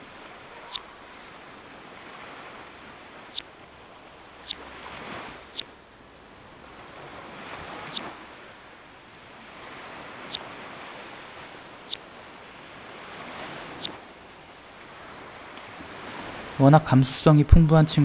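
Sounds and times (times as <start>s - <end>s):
ocean waves washing in: 0.0s - 18.0s
sharp high clicks: 4.4s - 6.2s, 7.8s - 8.2s, 10.2s - 11.1s, 11.7s - 12.3s, 13.7s - 14.1s.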